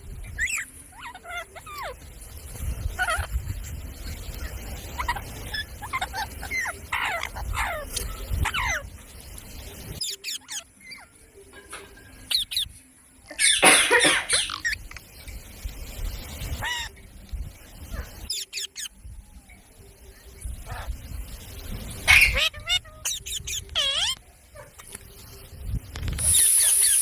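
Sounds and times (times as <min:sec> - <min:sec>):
parrot calling: 0:13.3 - 0:14.8, 0:22.1 - 0:24.2, 0:26.2 - 0:27.0
parrot harsh squawk: 0:13.4 - 0:14.8, 0:22.1 - 0:22.9.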